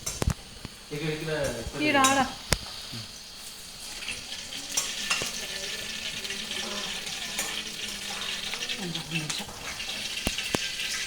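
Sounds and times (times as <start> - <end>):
food sizzling in oil: 0.0 - 11.0
spoon knocking against pan: 1.4 - 3.1.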